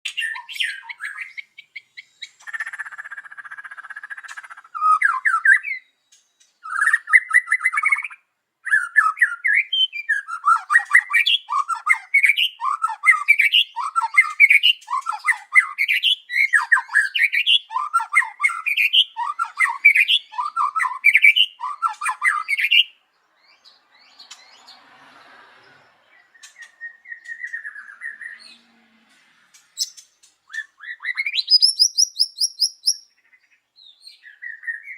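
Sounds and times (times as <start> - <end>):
bird singing whistled phrases: 0.1 - 3.1, 3.9 - 5.9, 6.6 - 23.0, 26.3 - 28.6, 29.8 - 34.9
rapidly repeated rising bird notes: 29.5 - 33.3.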